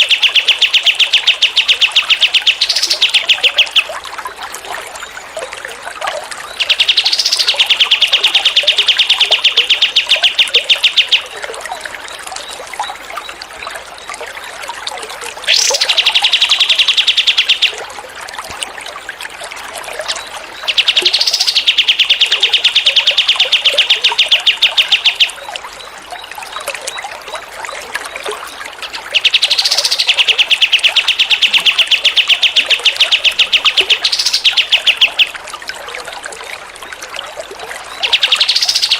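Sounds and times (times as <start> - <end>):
songbird trilling: 0.0 - 3.9, 6.5 - 11.4, 15.5 - 17.8, 20.6 - 25.5, 28.8 - 35.4, 37.9 - 38.9
running water trickling: 0.0 - 38.9.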